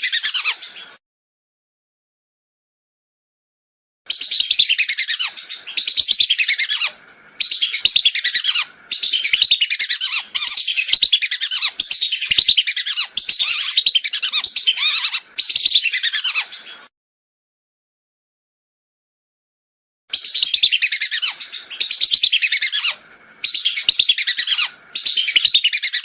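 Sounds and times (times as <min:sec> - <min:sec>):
ducks whistling calls: 0:04.2 - 0:16.8, 0:20.2 - 0:26.0.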